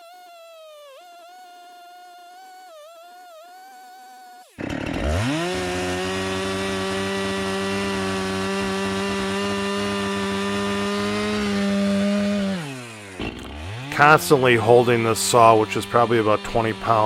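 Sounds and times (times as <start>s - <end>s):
chainsaw cutting wood: 4.4s - 17.0s.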